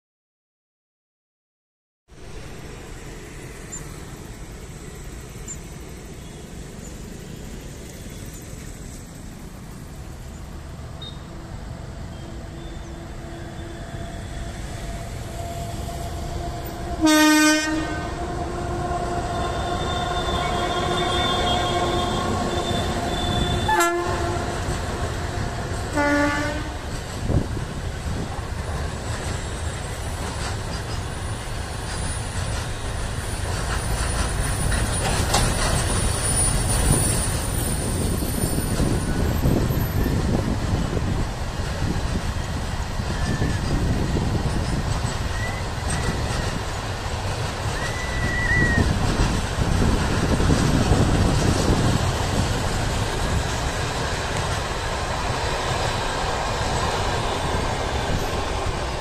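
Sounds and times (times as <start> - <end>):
electric locomotive whine: 2.2 - 59.0
train wagons rumbling and clacking: 2.2 - 59.0
train horn: 12.1 - 26.9.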